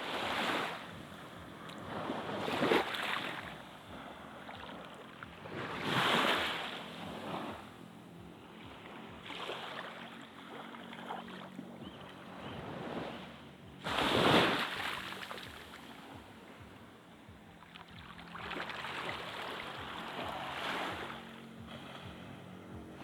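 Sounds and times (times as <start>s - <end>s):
sea waves washing onto beach: 12.1s - 16.6s.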